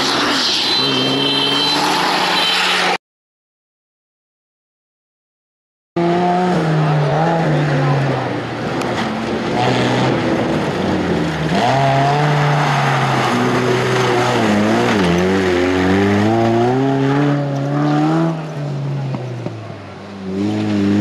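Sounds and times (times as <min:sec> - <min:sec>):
off-road vehicle engine revving: 0:06.0 - 0:19.2, 0:20.2 - 0:21.0.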